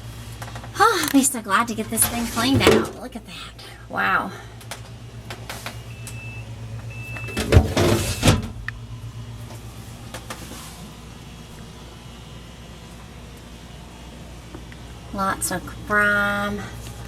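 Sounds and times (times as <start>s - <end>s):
steady low hum: 0.0s - 17.0s
refrigerator drawer sliding and rattling: 1.8s - 3.1s, 7.2s - 8.7s.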